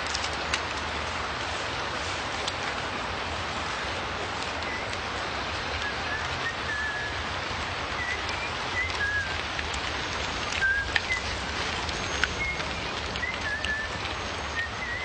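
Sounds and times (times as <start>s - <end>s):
steady rushing hiss: 0.0s - 15.0s.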